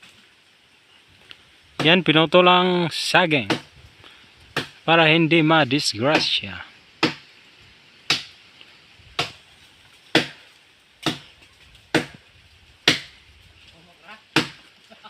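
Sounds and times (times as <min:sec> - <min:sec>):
blade chopping strikes: 0:06.1 - 0:06.4, 0:07.0 - 0:07.3, 0:08.1 - 0:08.3, 0:10.1 - 0:10.4, 0:11.0 - 0:11.3, 0:11.9 - 0:12.2, 0:12.8 - 0:13.2.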